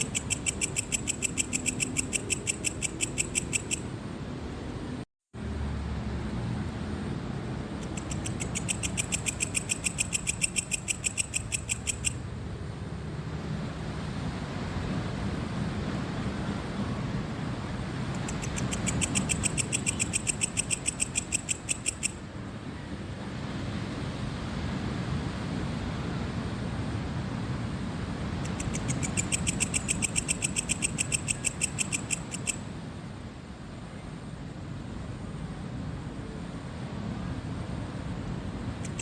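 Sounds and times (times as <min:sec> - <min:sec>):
cricket chirping: 0:00.0 - 0:03.9, 0:07.8 - 0:12.3, 0:18.2 - 0:22.3, 0:28.4 - 0:32.7, 0:38.8 - 0:39.0.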